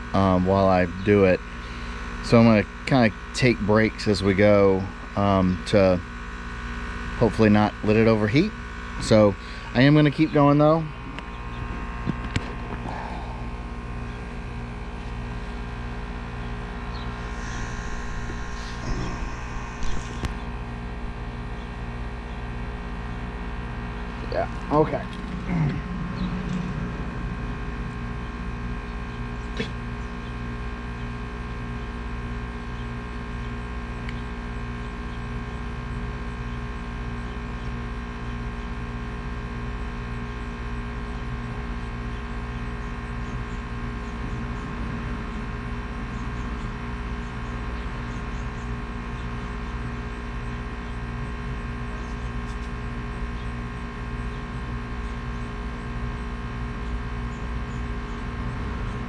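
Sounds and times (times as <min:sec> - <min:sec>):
plastic welding tool humming: 0:16.8 - 0:21.3.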